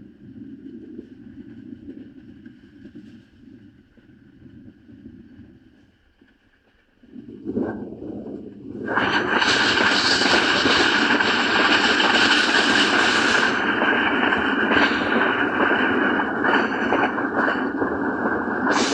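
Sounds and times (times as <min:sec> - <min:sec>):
train passing at speed: 0:08.8 - 0:18.9.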